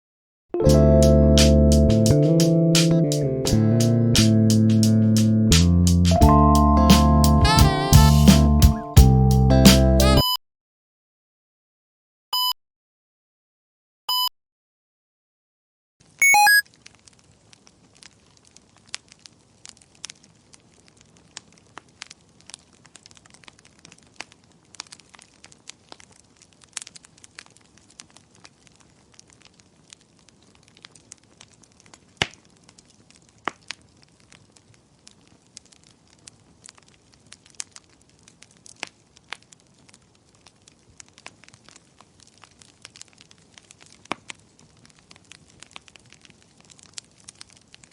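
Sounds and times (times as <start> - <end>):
wood fire crackling: 0.6 - 9.1, 16.0 - 47.9
electronic chime: 16.2 - 16.6
short beep: 16.2 - 16.6.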